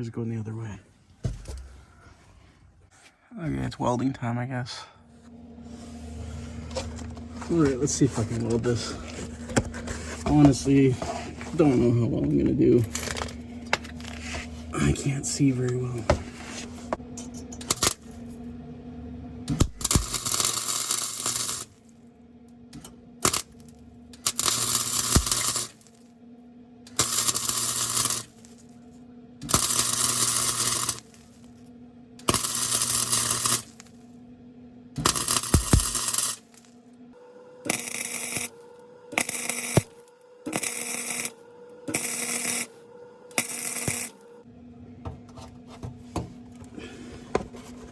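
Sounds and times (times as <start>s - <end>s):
steady low hum: 0.0s - 47.9s
electric welding arc crackling: 17.5s - 18.2s, 19.5s - 21.9s, 23.2s - 26.0s, 26.9s - 28.7s, 29.4s - 31.6s, 32.2s - 34.0s, 35.0s - 36.7s, 37.7s - 44.3s.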